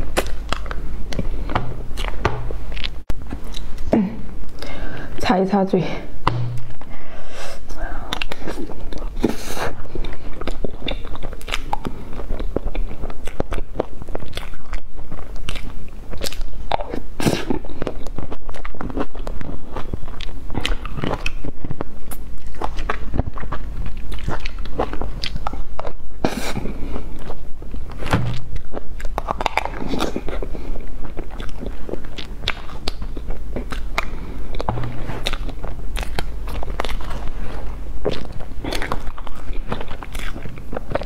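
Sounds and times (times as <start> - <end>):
chewing and lip smacking: 0.0 - 4.7, 8.0 - 41.0.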